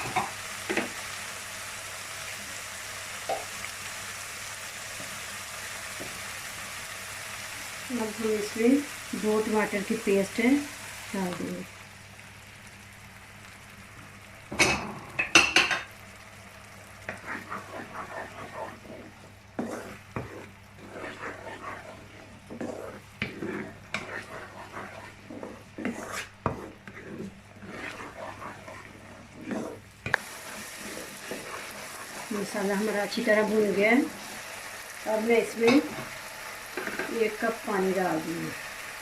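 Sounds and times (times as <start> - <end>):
light sizzle: 0.0 - 39.0
spoon knocking on pan: 14.5 - 15.9
spoon scraping frying pan: 17.0 - 34.5, 35.4 - 37.6.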